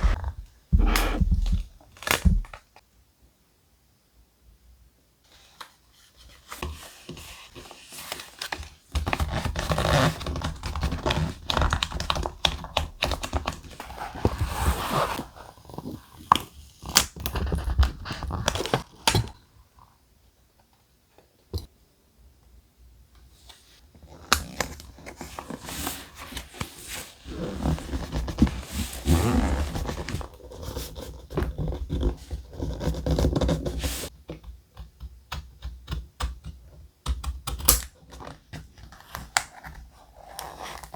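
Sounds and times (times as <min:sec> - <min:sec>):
thick paper rustling: 0:00.0 - 0:00.2.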